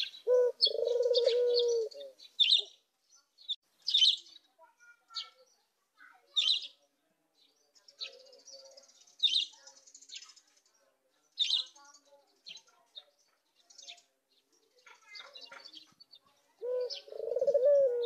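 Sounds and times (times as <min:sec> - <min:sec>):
dove cooing: 0:00.0 - 0:02.7, 0:16.6 - 0:18.0
high-pitched bird chirps: 0:03.9 - 0:04.5.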